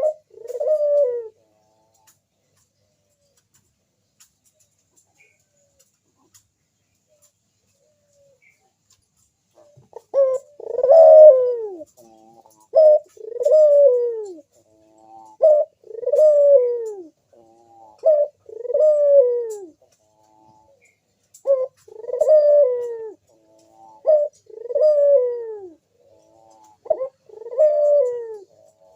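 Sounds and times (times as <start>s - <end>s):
dove cooing: 0.0s - 2.2s, 9.5s - 28.9s.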